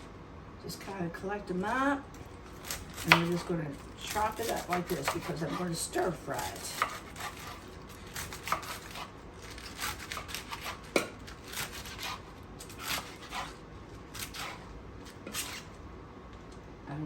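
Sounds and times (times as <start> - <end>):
knife chopping on cutting board: 2.6 - 3.5, 4.1 - 5.7, 6.4 - 13.6, 14.2 - 14.6.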